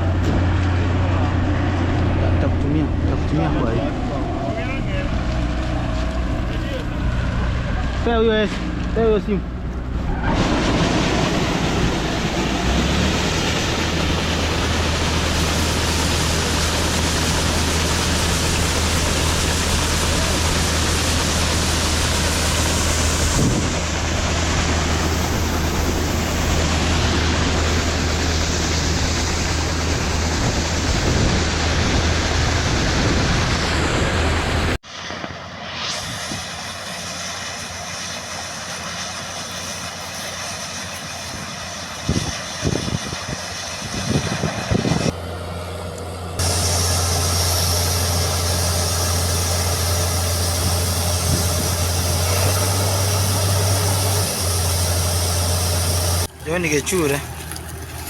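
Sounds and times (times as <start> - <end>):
farm machinery engine running: 0.0 - 58.0.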